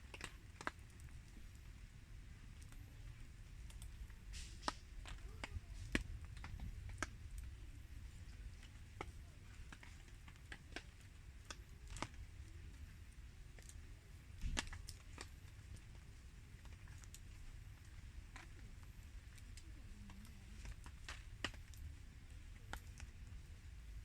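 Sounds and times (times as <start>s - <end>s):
rain falling: 0.0s - 13.8s
campfire crackling and popping: 0.0s - 24.0s.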